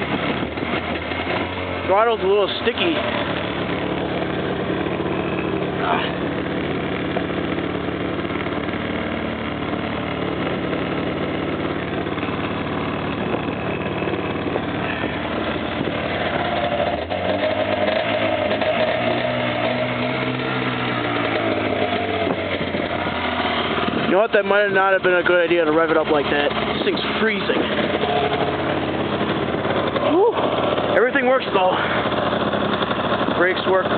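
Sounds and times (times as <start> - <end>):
snowmobile engine revving: 0.0 - 33.9.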